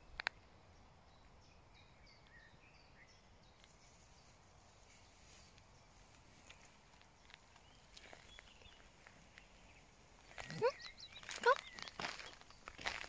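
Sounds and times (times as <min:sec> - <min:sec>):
faint high bird chirps: 0:05.1 - 0:12.8.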